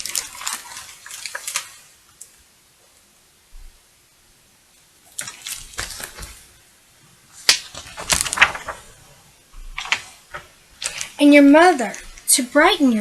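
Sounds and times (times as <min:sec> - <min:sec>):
book pages rustling: 0:00.0 - 0:01.9, 0:05.1 - 0:06.6, 0:07.3 - 0:12.3.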